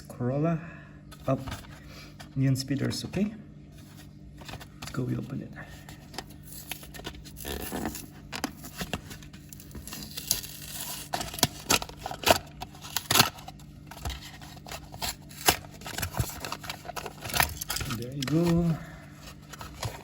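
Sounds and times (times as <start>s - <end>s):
card and plastic tearing: 5.8s - 20.0s.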